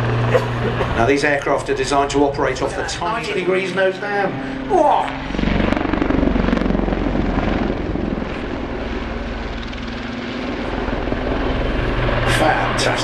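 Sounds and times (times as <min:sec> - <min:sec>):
helicopter engine hum: 0:00.0 - 0:13.0
helicopter rotor chop: 0:00.0 - 0:13.0.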